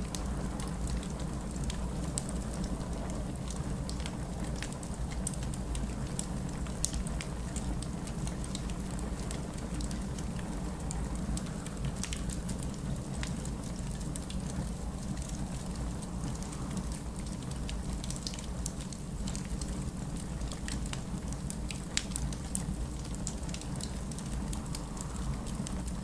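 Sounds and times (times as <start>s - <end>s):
low fire rumble: 0.0s - 26.0s
wood fire crackling: 0.0s - 26.0s.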